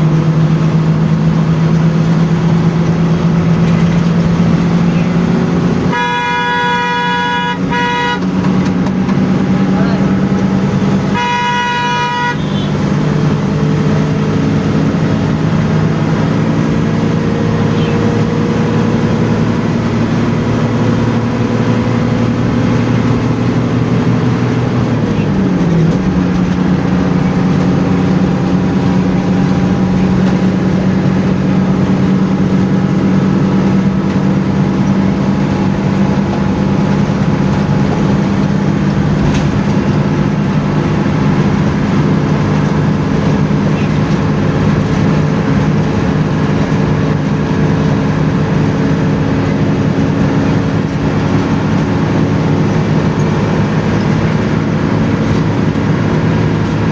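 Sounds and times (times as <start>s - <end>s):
bus engine running: 0.0s - 56.9s
road noise: 0.0s - 56.9s
horn toot: 5.8s - 8.6s, 11.1s - 13.0s.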